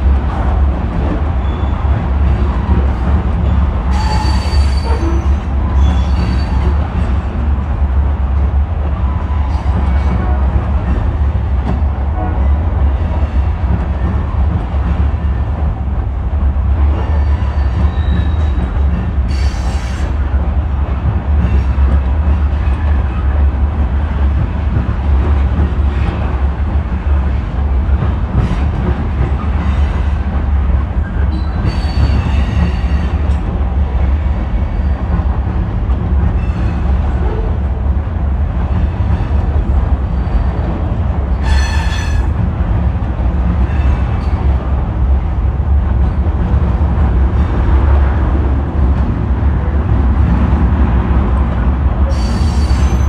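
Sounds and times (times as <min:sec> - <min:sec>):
freight train rumbling: 0:00.0 - 0:53.0
high-pitched wheel squeals: 0:03.9 - 0:06.6.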